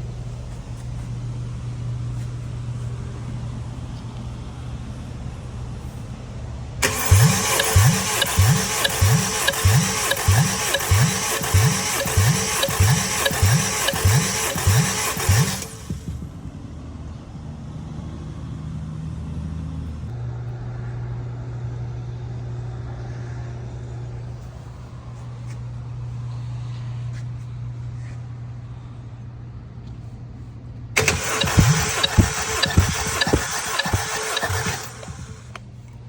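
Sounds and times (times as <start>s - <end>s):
engine cranking on starter: 6.8s - 16.5s, 31.0s - 35.6s
steady low hum: 23.5s - 36.0s.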